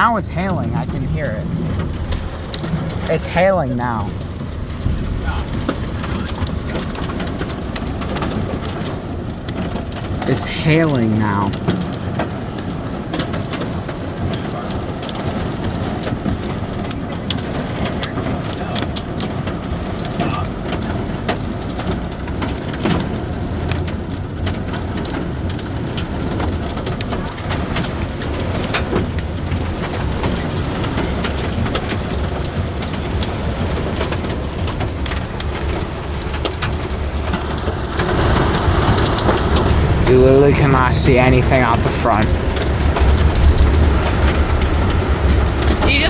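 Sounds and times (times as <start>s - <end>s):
car rumbling on road: 0.0s - 10.3s
hail and rain drumming on car roof: 0.0s - 46.0s.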